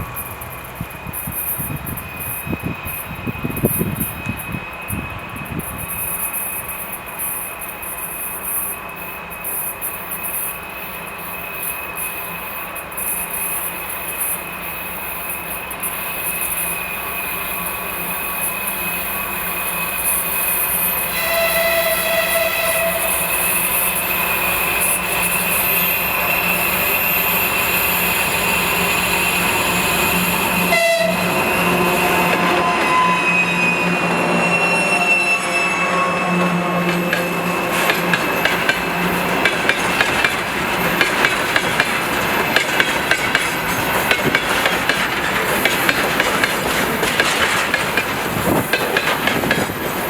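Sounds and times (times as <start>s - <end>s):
diesel locomotive engine: 0.0s - 50.0s
high turbocharger whistle: 16.1s - 39.3s
locomotive horn: 21.0s - 23.6s, 29.0s - 39.2s.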